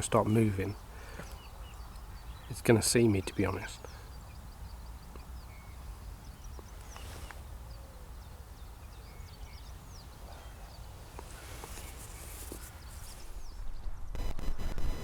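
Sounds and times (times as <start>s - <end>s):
small birds chirping: 0.0s - 13.9s
wind rumble on microphone: 4.2s - 15.0s.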